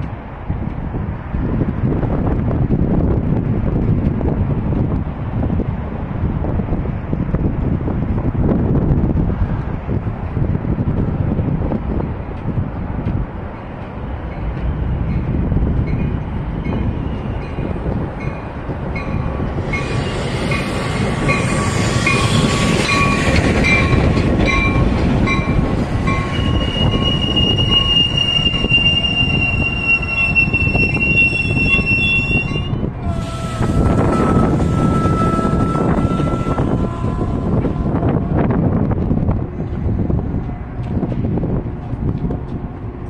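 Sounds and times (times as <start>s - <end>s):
train cars rumbling: 0.0s - 43.0s
high brake squeal: 26.3s - 32.8s.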